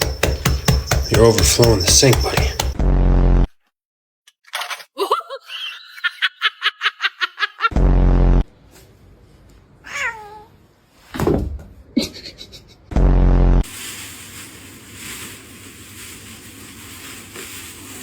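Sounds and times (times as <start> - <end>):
person laughing: 4.8 - 7.7, 12.0 - 12.9.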